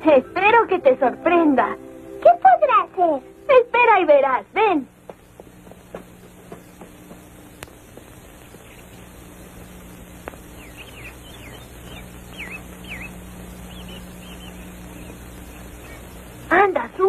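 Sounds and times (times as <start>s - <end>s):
low steady hum: 0.0s - 17.0s
small birds chirping: 6.2s - 17.0s.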